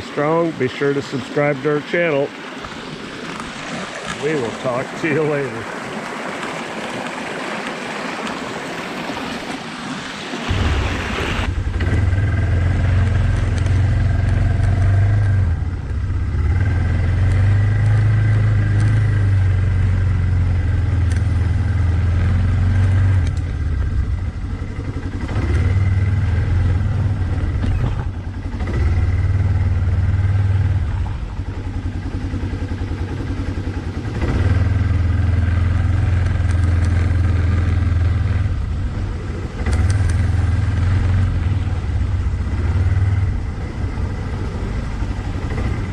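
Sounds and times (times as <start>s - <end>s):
atv engine revving: 10.4s - 45.9s.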